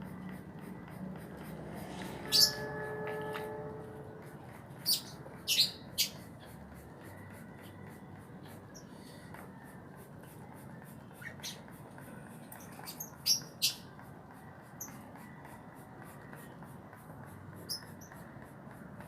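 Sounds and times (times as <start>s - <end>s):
faint background hum: 0.0s - 19.0s.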